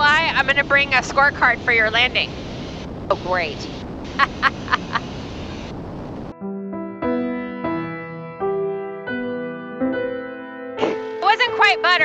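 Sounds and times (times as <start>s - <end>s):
slow piano music: 6.3s - 12.0s.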